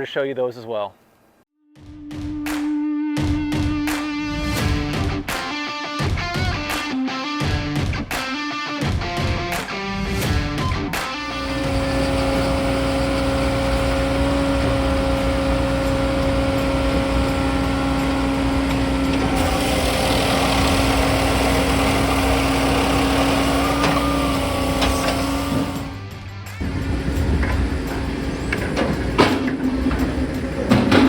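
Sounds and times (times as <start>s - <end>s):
machine hum with low whine: 11.3s - 26.0s, 26.6s - 31.0s.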